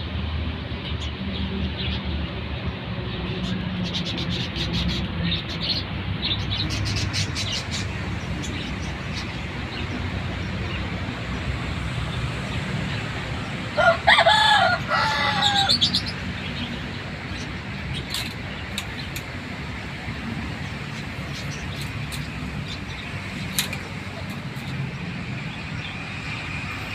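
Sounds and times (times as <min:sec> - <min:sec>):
rooster crowing: 0:13.7 - 0:16.0.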